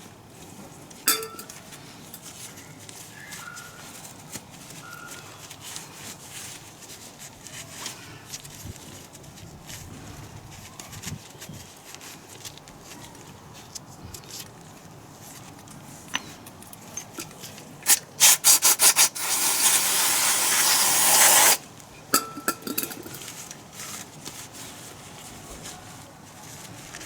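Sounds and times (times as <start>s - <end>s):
steady hiss: 17.8s - 21.6s.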